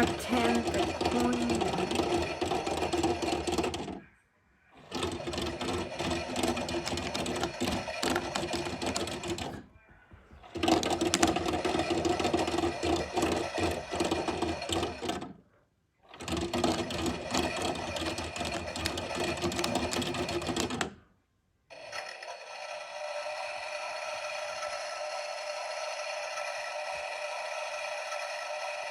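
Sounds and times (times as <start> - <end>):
small motor clicking rattle: 0.0 - 4.0, 4.8 - 9.6, 10.5 - 15.4, 16.1 - 21.0, 21.7 - 28.9.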